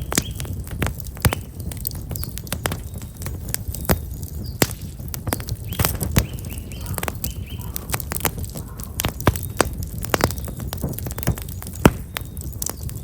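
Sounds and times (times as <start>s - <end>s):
campfire crackling and popping: 0.0s - 13.0s
small bird chirping: 4.3s - 9.6s.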